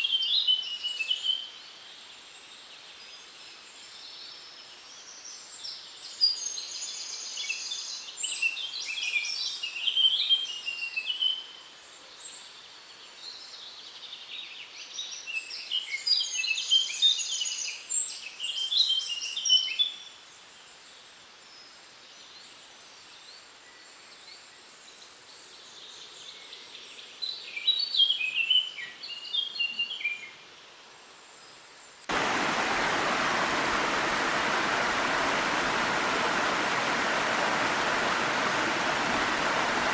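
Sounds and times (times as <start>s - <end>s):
faint hiss: 30.6s - 39.9s
small waterfall rushing: 32.1s - 39.9s
songbird singing: 32.1s - 39.9s.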